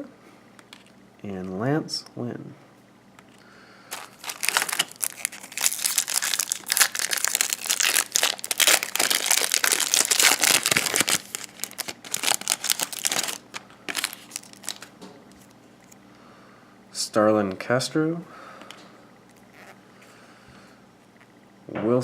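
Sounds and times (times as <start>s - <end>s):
wrapper crinkling: 3.9s - 15.6s.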